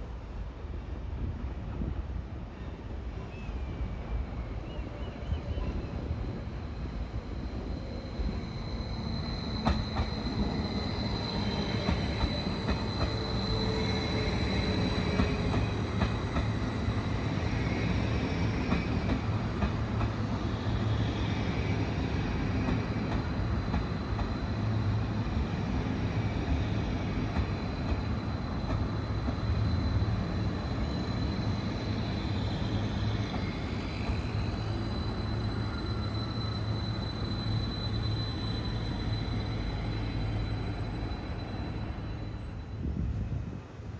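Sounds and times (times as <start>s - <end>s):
train wheels rumbling on track: 5.2s - 43.9s.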